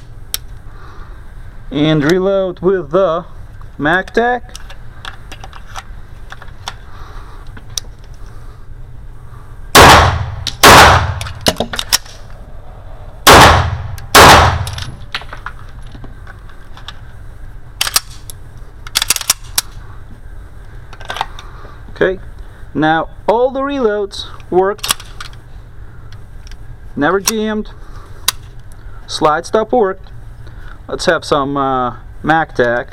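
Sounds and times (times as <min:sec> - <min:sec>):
pistol shots: 0:09.7 - 0:11.6, 0:13.2 - 0:15.0
sharp metallic clicks: 0:09.8 - 0:12.3, 0:13.3 - 0:15.3.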